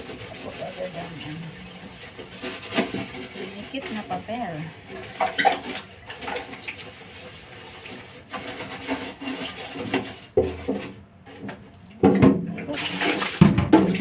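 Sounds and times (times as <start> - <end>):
steel wool scrubbing hard surface: 0.0 - 11.0.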